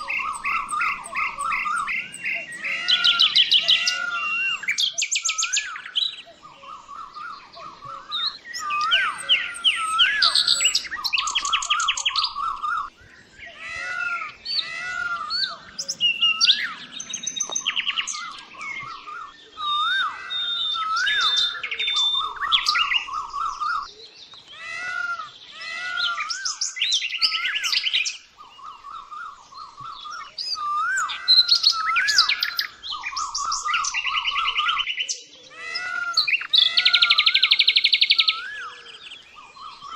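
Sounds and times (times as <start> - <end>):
birds chattering trills: 0.0 - 39.9
birds whistling: 0.0 - 39.9.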